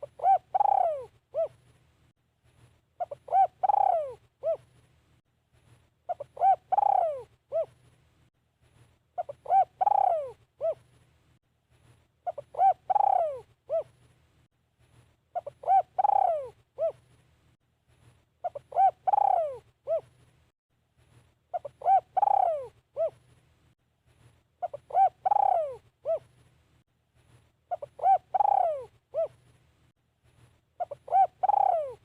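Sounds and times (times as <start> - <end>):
dove cooing: 0.0 - 1.6, 3.0 - 4.7, 6.1 - 7.8, 9.2 - 10.9, 12.2 - 14.0, 15.4 - 17.0, 18.4 - 20.1, 21.5 - 23.2, 24.6 - 26.3, 27.7 - 29.4, 30.8 - 32.0.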